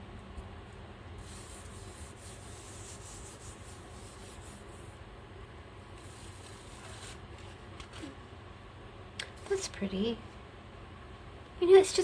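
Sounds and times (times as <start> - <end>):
hand rubbing on paper: 1.2 - 5.0, 6.0 - 7.6.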